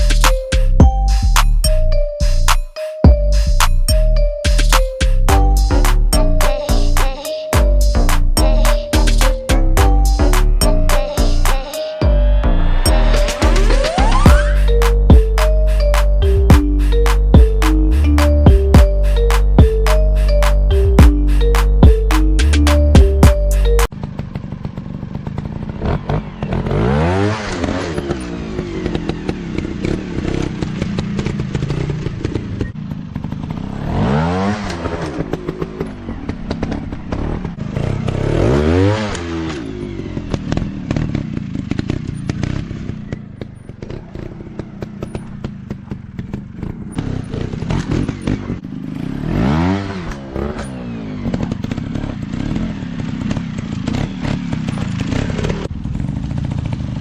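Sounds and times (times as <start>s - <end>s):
dirt bike engines revving: 9.2s - 57.0s
rattling over rough ground: 27.5s - 48.6s, 50.0s - 57.0s.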